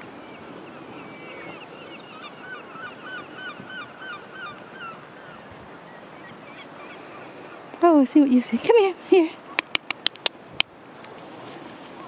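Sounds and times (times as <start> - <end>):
louder lower bird calls: 0.0 - 7.6.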